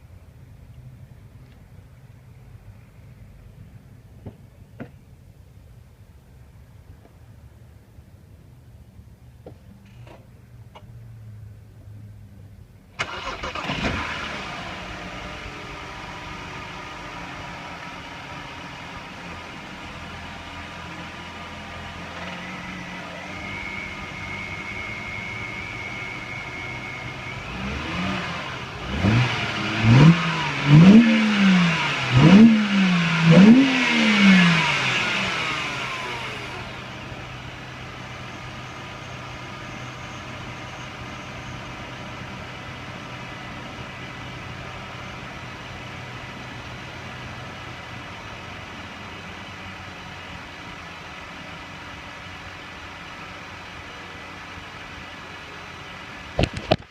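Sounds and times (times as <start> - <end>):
car engine idling and revving: 0.0 - 56.9.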